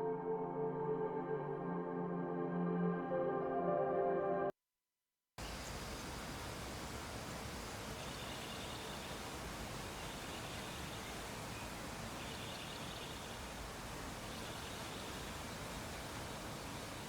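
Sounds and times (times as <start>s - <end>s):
background hiss: 5.4s - 17.0s.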